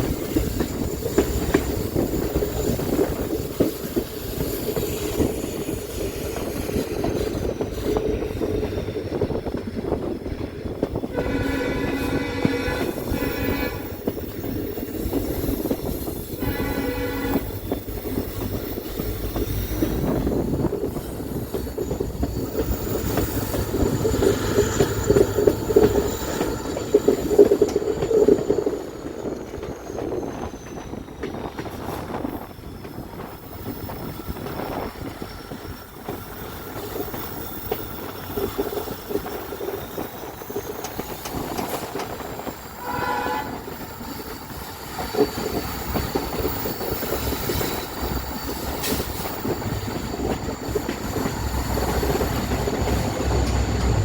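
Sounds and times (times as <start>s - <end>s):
train wheels clattering: 0.0s - 54.0s
train horn blast: 11.1s - 14.1s, 16.4s - 17.6s, 42.8s - 43.8s
high wheel squeal: 11.3s - 54.0s.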